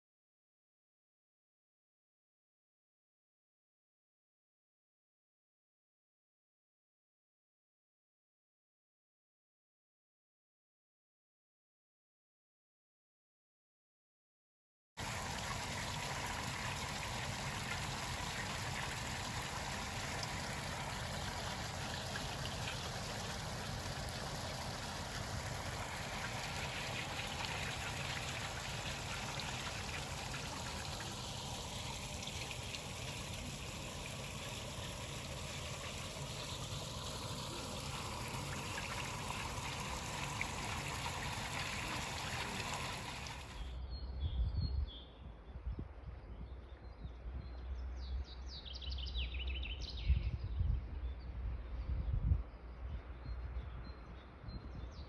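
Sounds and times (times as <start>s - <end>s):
stream water rushing: 15.0s - 43.6s.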